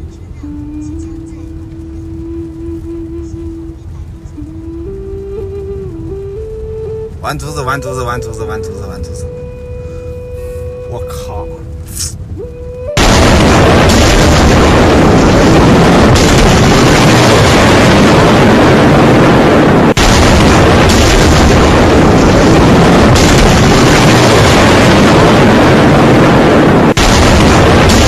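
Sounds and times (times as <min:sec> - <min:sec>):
driving rain: 0:00.0 - 0:28.0
gale-force wind: 0:00.0 - 0:28.0.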